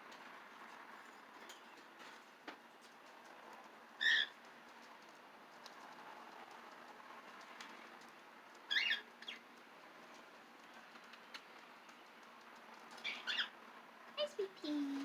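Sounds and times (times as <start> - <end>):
parrot chirping: 13.0 - 13.5.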